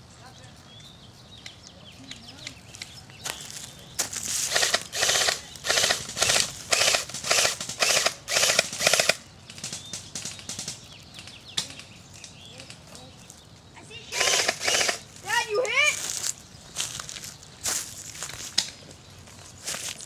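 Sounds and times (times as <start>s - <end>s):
airsoft gun firing bursts: 4.5s - 10.8s, 14.1s - 15.1s.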